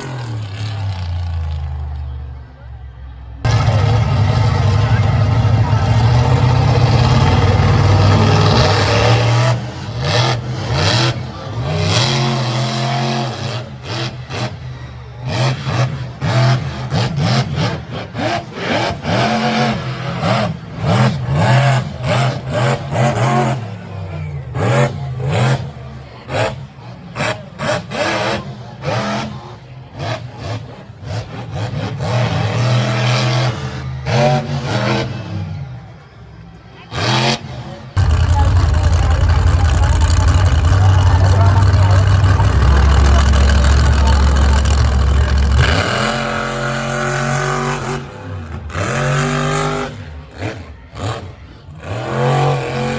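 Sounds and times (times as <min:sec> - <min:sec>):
truck engine revving: 0:00.0 - 0:35.8, 0:36.8 - 0:52.9.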